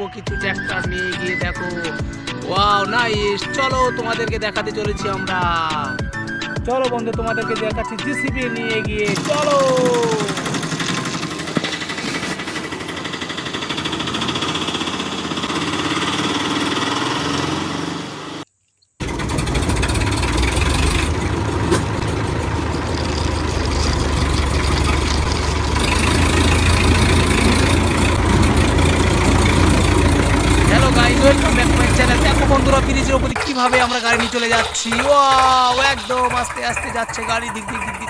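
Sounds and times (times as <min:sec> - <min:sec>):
small tractor engine running: 0:08.2 - 0:38.0
deep engine rumble: 0:08.7 - 0:38.0.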